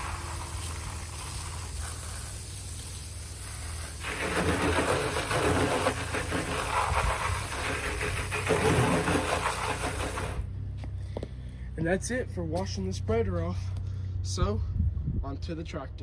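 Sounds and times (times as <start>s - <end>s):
hose spraying onto metal: 0.0s - 10.4s.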